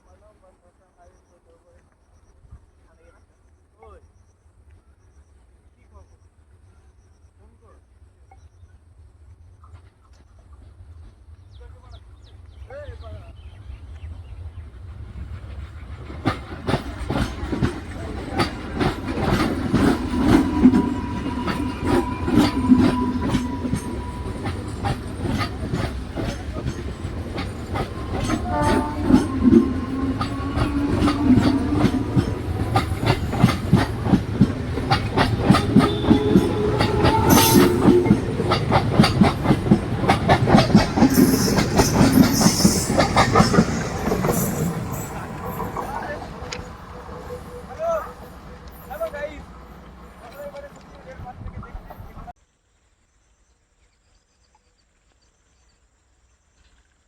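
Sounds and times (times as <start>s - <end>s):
freight train wheels clacking: 14.7s - 51.1s
train wheels squealing: 16.8s - 33.8s, 35.0s - 39.4s, 40.9s - 49.4s.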